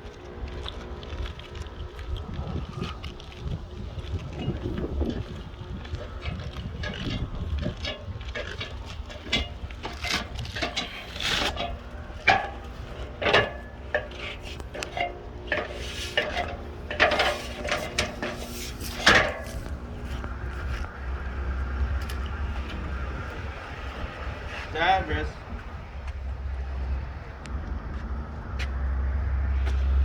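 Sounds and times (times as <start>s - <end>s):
low rumble: 0.0s - 30.0s
handling clicks and knocks: 3.4s - 21.0s.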